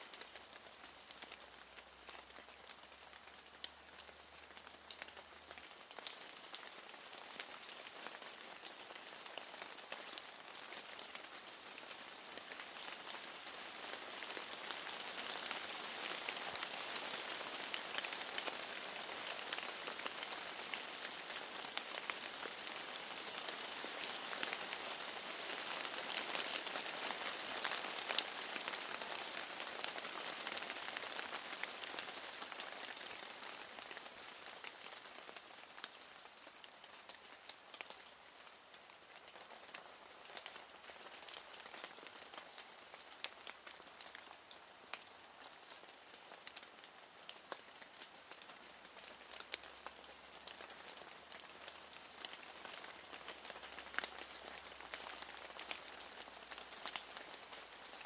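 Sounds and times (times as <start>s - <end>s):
rain ticking against window glass: 0.1s - 58.0s.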